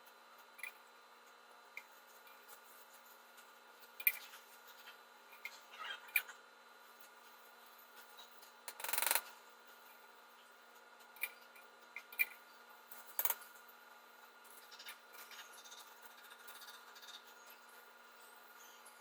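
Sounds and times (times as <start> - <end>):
faint steady hum: 0.0 - 19.0
small clicks: 8.7 - 9.3.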